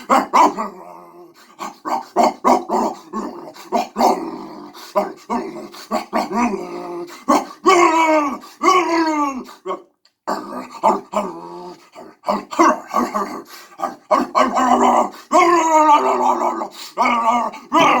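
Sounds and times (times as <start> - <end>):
dog howling and growling: 0.0 - 9.9, 13.9 - 18.0.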